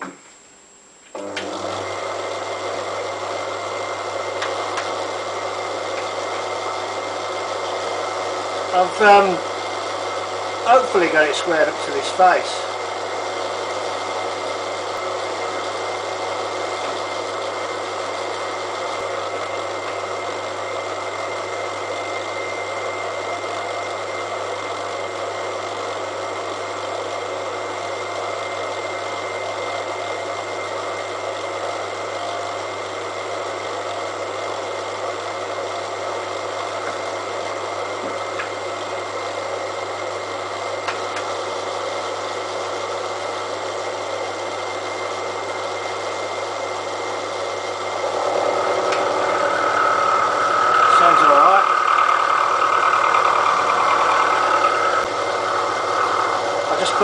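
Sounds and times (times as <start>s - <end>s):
milling machine cutting steel: 1.2s - 22.3s, 45.2s - 57.0s.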